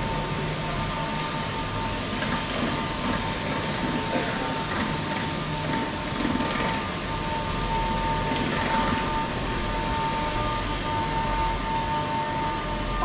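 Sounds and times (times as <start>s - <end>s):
electric train rumble: 0.0s - 13.0s
high steady whine: 0.0s - 13.0s.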